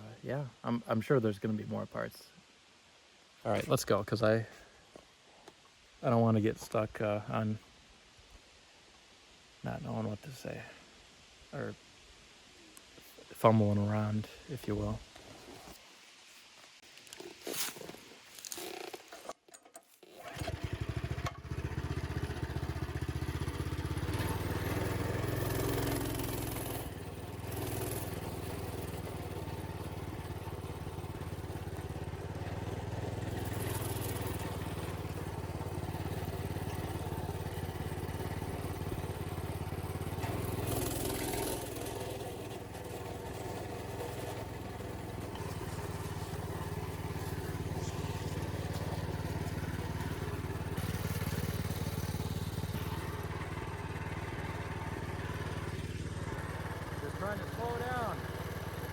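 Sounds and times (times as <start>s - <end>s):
minibike engine revving: 20.1s - 58.9s.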